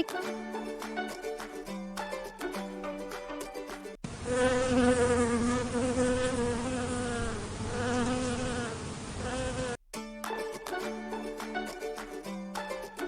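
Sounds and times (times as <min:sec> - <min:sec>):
bee buzzing in flight: 0:04.2 - 0:09.8.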